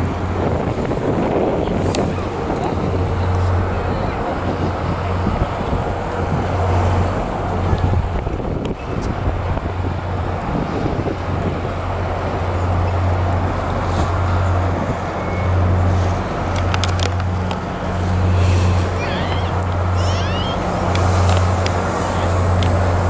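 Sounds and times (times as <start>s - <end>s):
traffic noise: 0.0s - 23.0s.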